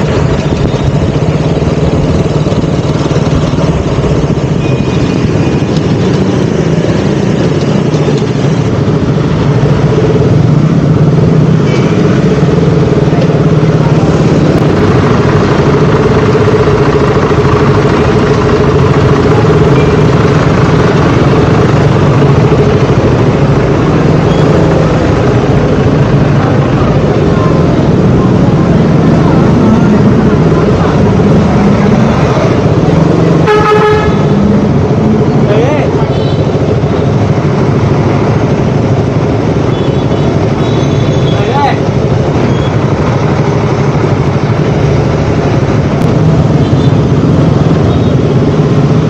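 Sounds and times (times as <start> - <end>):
motorcycle engine running: 0.0 - 49.0
road and wind noise: 0.0 - 49.0.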